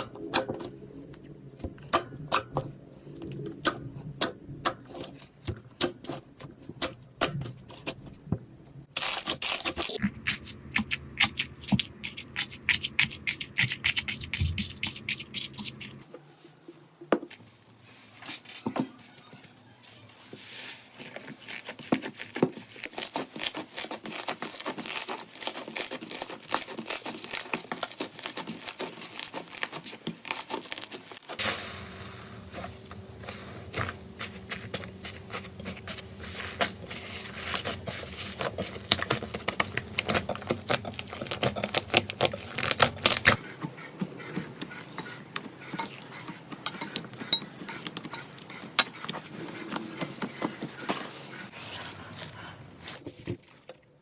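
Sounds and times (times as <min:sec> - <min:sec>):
low steady hum: 0:31.4 - 0:53.8.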